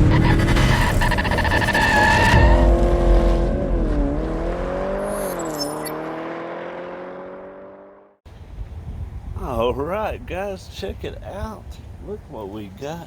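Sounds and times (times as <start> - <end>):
rattly vehicle engine: 0.0 - 3.4.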